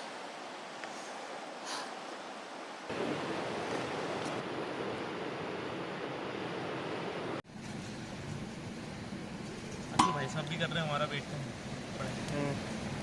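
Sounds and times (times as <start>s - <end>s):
river flowing: 0.0s - 7.4s.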